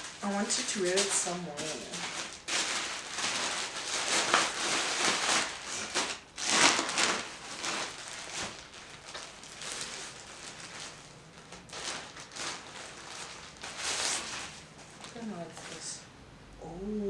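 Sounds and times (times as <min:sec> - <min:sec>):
plastic packaging crinkling: 0:00.0 - 0:15.9.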